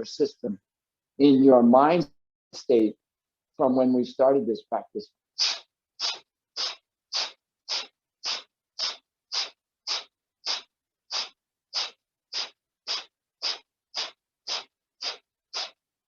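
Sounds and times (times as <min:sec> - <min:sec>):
forceful nasal exhales: 0:05.4 - 0:15.8.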